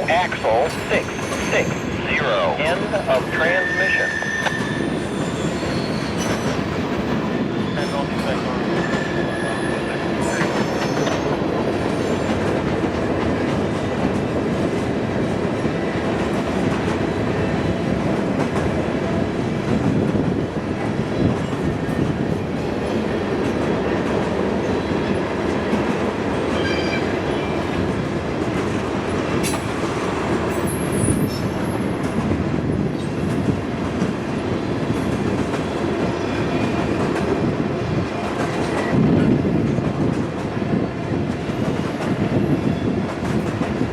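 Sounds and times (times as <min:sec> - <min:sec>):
high wheel squeal: 0:03.4 - 0:06.6, 0:26.6 - 0:27.6.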